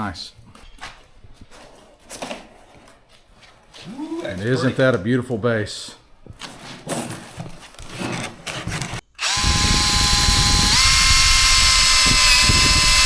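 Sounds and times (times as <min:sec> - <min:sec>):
power drill whining: 0:09.2 - 0:13.0.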